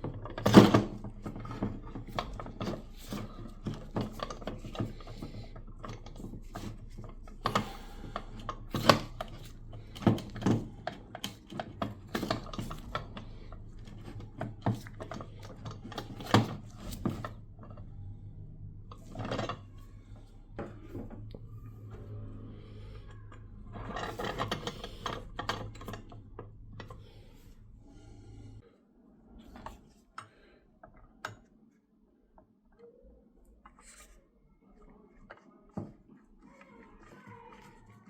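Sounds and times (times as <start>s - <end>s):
wooden grinder parts knocking: 0.0s - 27.6s.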